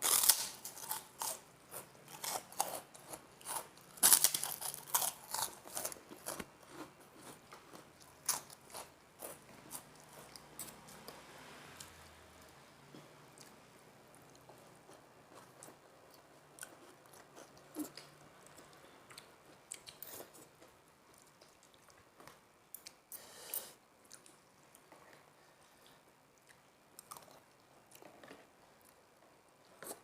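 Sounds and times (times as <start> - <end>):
chewing and crunching: 0.0 - 11.2.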